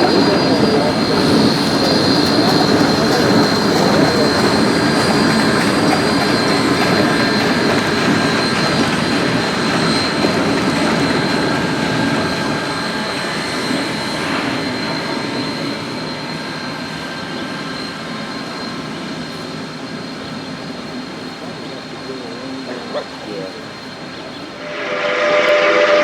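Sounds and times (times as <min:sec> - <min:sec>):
steam locomotive passing: 0:00.0 - 0:26.0
thin high whine: 0:24.5 - 0:26.0.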